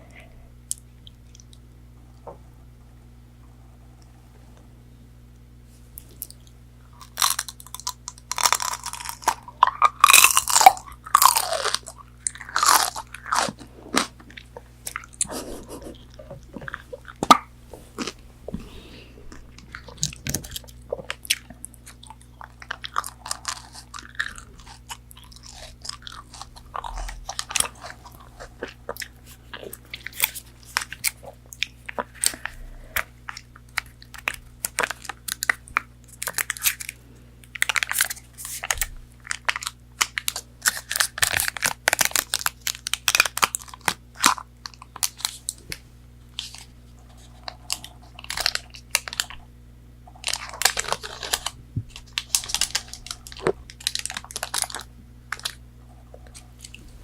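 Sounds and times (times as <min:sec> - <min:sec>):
chewing with crisp crackles: 0:00.0 - 0:02.4, 0:06.0 - 0:57.0
crunchy bites into food: 0:07.0 - 0:15.3, 0:19.7 - 0:46.7.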